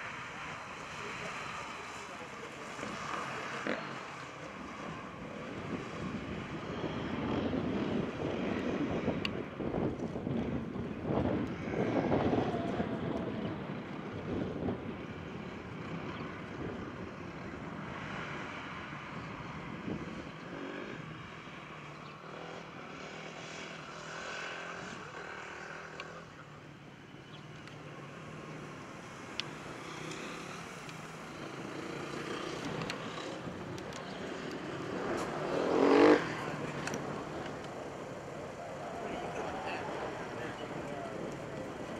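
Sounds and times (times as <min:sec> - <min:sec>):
sports car engines passing: 0:00.0 - 0:41.9
engine revving close by: 0:00.8 - 0:09.3, 0:29.5 - 0:41.9.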